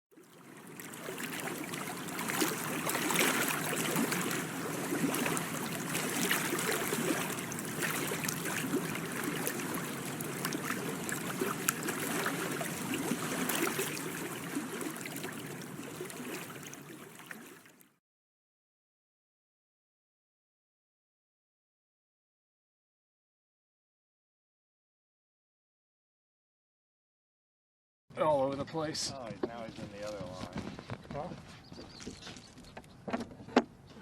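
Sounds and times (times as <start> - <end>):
water trickling and gurgling: 0.1 - 18.0.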